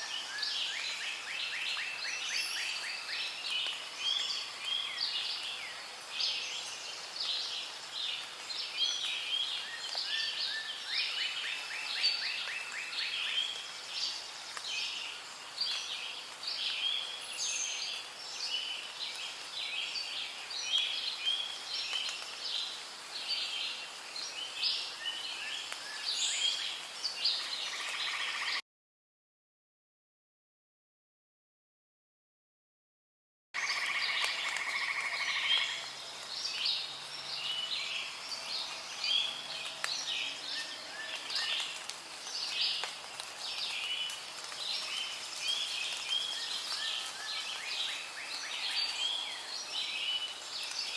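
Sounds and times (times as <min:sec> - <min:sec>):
faint steady hiss: 0:00.0 - 0:28.5, 0:33.6 - 0:50.9
birds chirping in chorus: 0:33.6 - 0:50.9.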